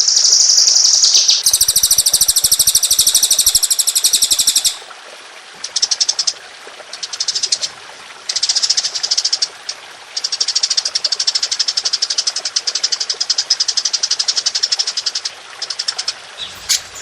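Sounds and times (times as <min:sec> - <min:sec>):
songbird rattling trills: 0:00.0 - 0:04.8, 0:10.2 - 0:17.0.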